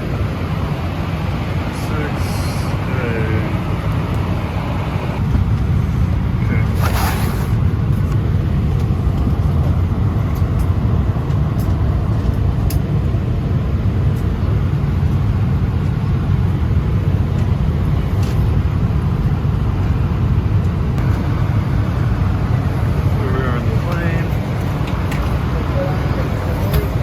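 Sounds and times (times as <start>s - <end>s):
steady low rumble of air-conditioning: 0.0s - 27.0s.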